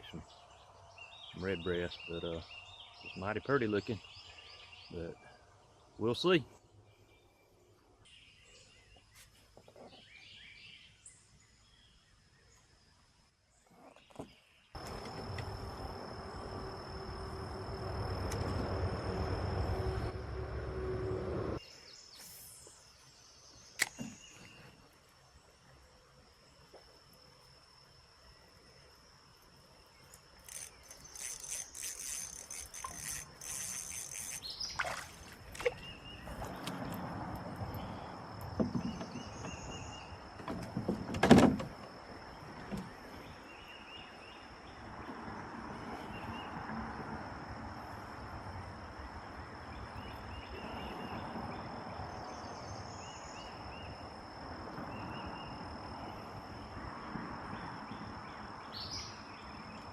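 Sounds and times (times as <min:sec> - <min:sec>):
insects droning: 0:13.9 - 0:59.9.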